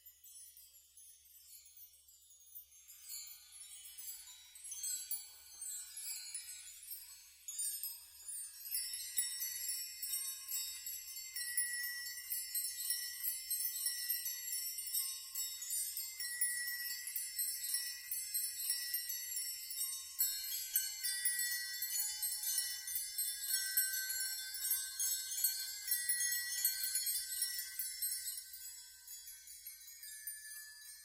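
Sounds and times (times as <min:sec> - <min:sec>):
metal chimes tinkling: 0:00.0 - 0:31.0.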